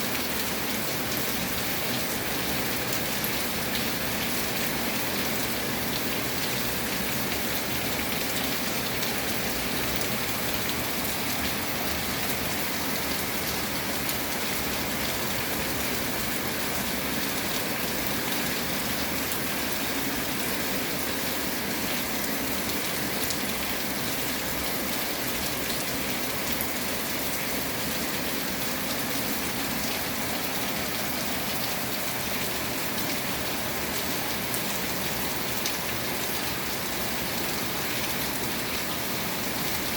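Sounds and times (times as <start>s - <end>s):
rain pattering: 0.1s - 39.9s.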